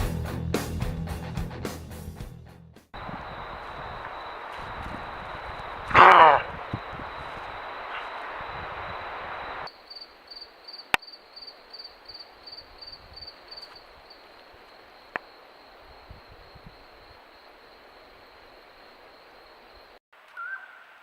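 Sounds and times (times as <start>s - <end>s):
steady rushing noise: 3.0s - 9.7s.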